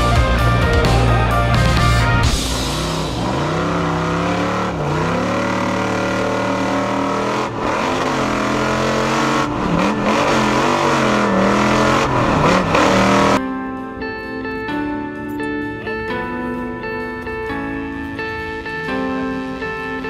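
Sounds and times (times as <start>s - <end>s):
truck engine revving hard: 0.0s - 13.4s
guitar music: 0.0s - 20.0s.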